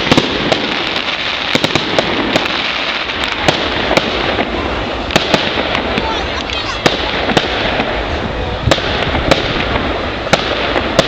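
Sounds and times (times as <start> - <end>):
firework bangs and pops: 0.0 - 11.0
fireworks crackling: 0.0 - 11.0.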